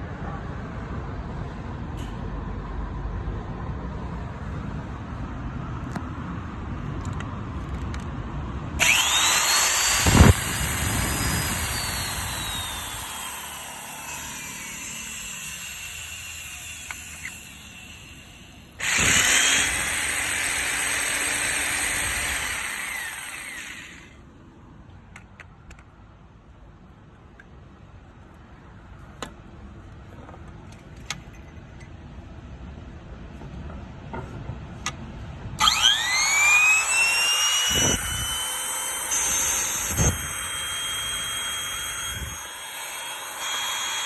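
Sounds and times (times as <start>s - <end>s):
electric motor whining: 8.8s - 18.0s, 18.8s - 24.1s, 35.6s - 44.0s.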